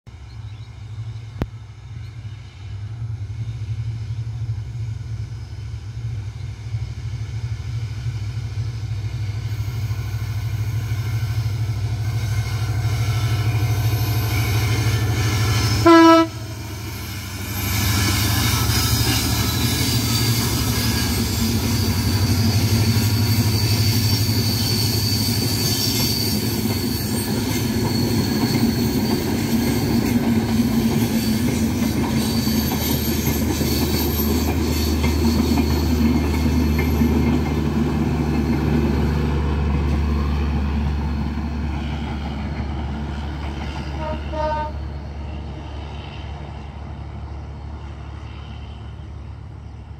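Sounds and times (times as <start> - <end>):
train rumbling past: 0.1 - 49.9
diesel locomotive horn: 12.4 - 22.4, 43.8 - 46.3.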